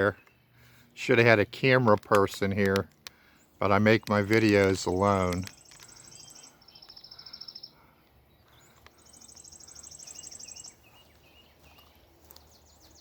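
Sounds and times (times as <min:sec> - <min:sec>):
high rapid bird trill: 0:05.0 - 0:07.9, 0:09.0 - 0:11.5.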